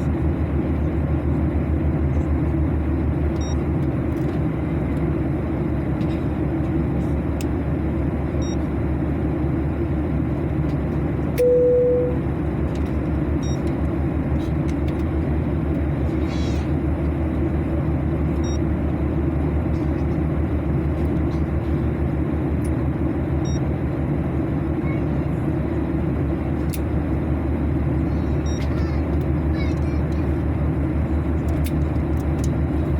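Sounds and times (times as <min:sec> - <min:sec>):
airliner cabin engine rumble: 0:00.0 - 0:32.9
short beep: 0:11.4 - 0:12.2.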